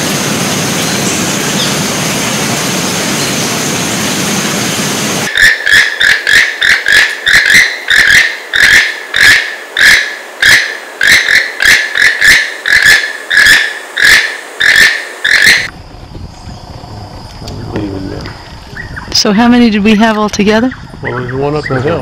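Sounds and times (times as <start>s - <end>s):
toucan calling: 5.3s - 15.7s.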